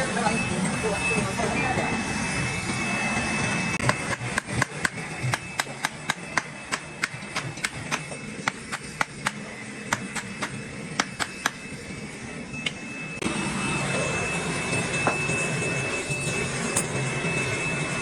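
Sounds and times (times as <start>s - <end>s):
workshop machine whining: 0.0s - 18.0s.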